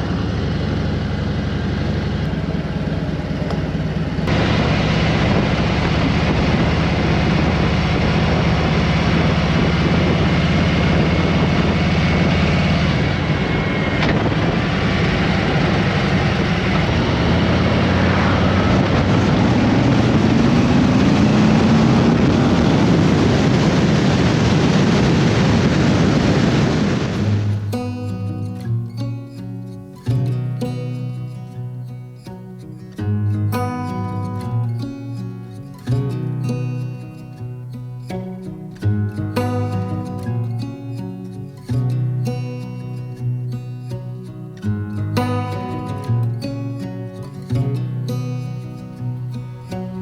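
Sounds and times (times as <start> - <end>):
motorcycle engine running: 0.0 - 28.3
wind rushing over microphone: 4.2 - 27.9.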